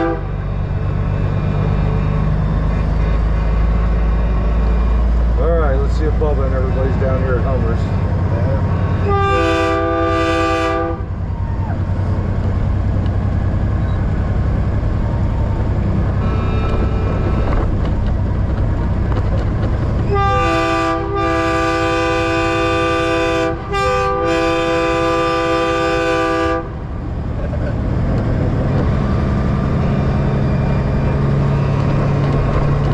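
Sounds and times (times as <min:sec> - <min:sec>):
train horn chord blasts: 0:00.0 - 0:00.4, 0:08.8 - 0:11.1, 0:16.2 - 0:17.4, 0:20.1 - 0:26.8
diesel truck engines rumbling: 0:00.0 - 0:32.9.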